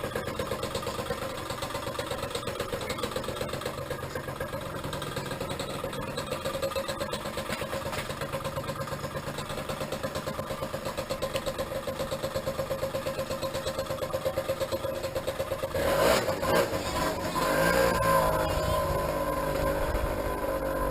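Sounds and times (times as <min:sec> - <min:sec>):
small engine idling and revving: 0:00.0 - 0:20.9.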